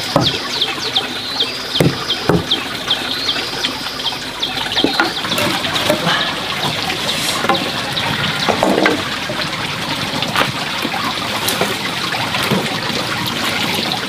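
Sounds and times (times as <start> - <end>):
small bird singing: 0.0 - 6.6
trickle of running water: 0.0 - 14.0
sharp knocks: 1.8 - 2.7.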